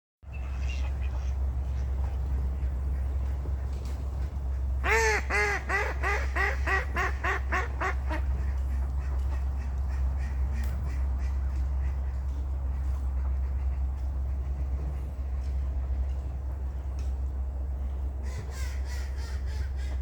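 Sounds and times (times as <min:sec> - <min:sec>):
steady low hum: 0:00.2 - 0:20.0
duck quacking: 0:04.5 - 0:14.7.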